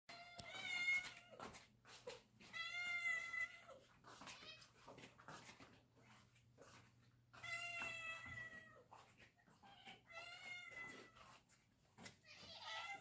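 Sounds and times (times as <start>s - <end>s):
cat meowing: 7.4s - 8.9s, 9.5s - 11.2s, 12.2s - 13.0s.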